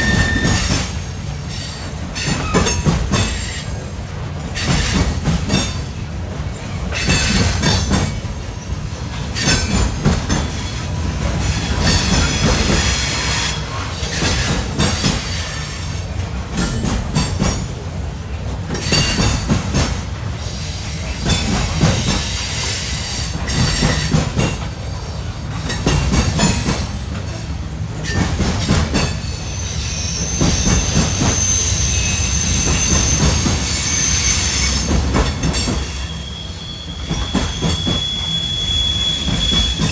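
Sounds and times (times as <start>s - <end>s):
wheel squeal: 0.0s - 0.9s, 29.0s - 39.9s
train wheels clacking on rail joints: 0.0s - 39.9s.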